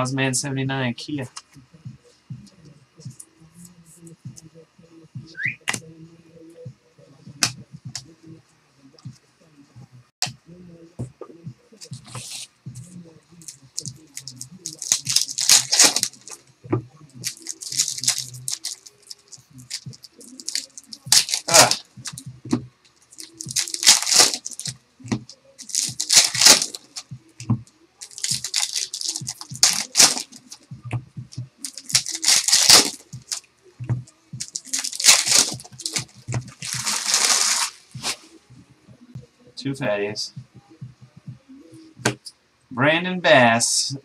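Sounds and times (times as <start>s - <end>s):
wrapper tearing and crinkling: 13.4s - 16.4s, 17.2s - 22.2s, 23.1s - 24.8s, 25.6s - 27.0s, 28.0s - 30.6s, 31.6s - 33.4s, 34.4s - 37.8s.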